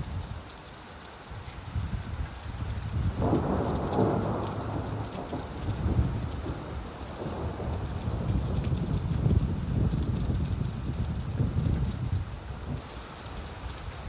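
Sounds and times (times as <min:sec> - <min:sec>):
steady rainfall: 0:00.0 - 0:14.0
thunder rumbling: 0:03.0 - 0:12.2.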